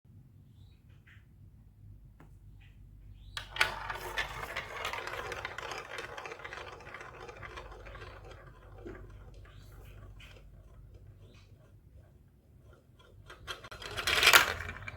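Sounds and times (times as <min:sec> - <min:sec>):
marbles rattling down plastic track: 0:03.4 - 0:14.9.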